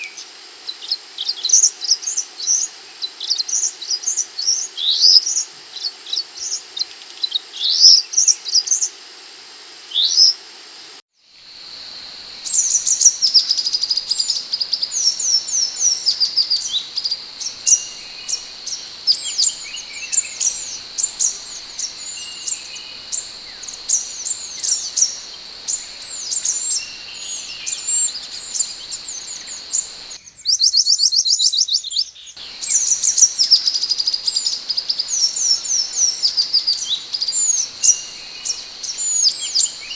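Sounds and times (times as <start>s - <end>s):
steady high hum: 11.5s - 30.2s, 32.4s - 39.9s
bird calling high whistled notes: 11.7s - 30.2s, 32.4s - 39.9s.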